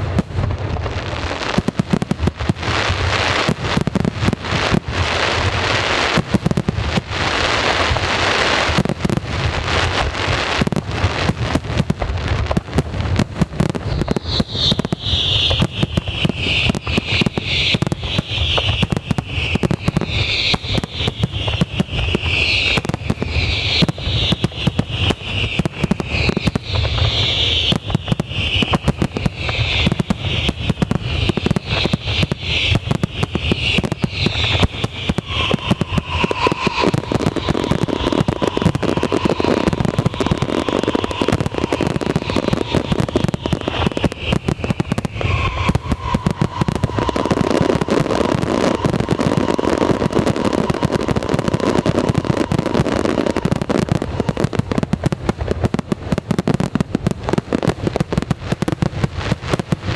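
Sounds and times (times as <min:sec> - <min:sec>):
fireworks bangs and crackles: 0:00.0 - 0:59.9
high shrill pulsing sound: 0:25.2 - 0:54.5.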